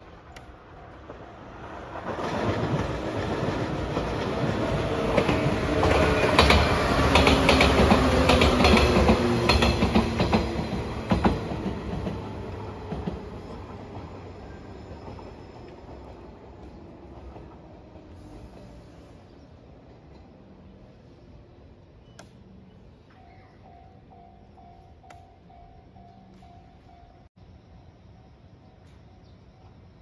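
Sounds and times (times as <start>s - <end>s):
electric train passing: 0.0s - 30.0s
wheels clicking over rail joints: 0.2s - 14.3s.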